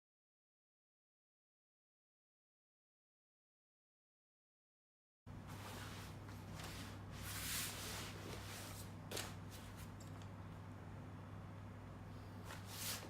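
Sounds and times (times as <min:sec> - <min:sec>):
steady low hum: 0:05.3 - 0:13.0
soft rustling swishes: 0:05.4 - 0:10.0, 0:12.4 - 0:13.0.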